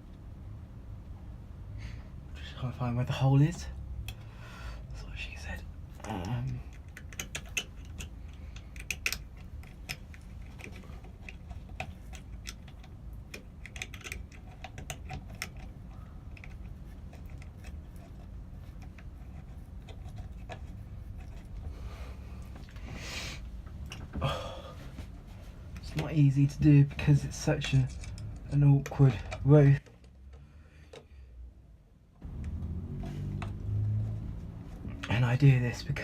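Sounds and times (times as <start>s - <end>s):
low steady hum: 0.0s - 36.0s
metal hardware clicks and taps: 6.2s - 15.7s.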